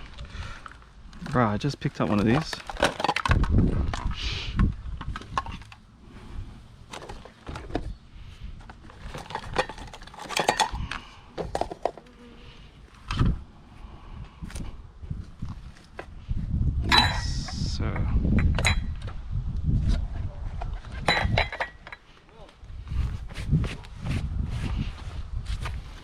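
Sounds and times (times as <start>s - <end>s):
small hard objects clattering: 0.0s - 5.8s, 8.7s - 12.1s.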